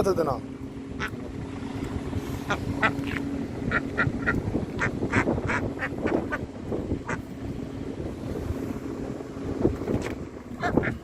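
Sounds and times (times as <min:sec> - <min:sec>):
ducks quacking: 0:01.0 - 0:01.2, 0:02.5 - 0:06.4, 0:07.0 - 0:07.2, 0:10.6 - 0:11.0.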